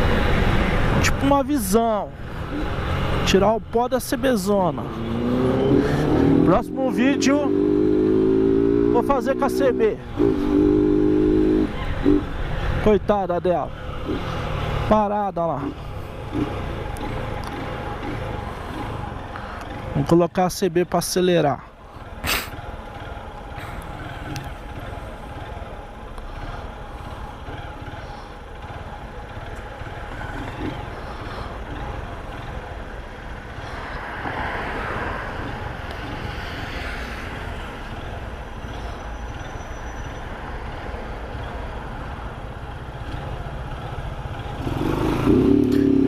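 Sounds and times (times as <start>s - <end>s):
motorcycle engine running: 15.6s - 20.0s, 22.0s - 33.5s.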